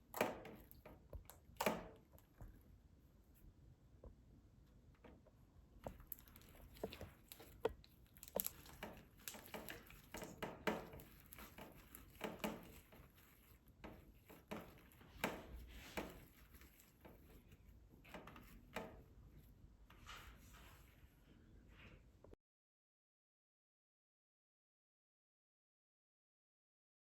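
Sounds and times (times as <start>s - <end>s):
slime squelching: 5.8s - 18.7s.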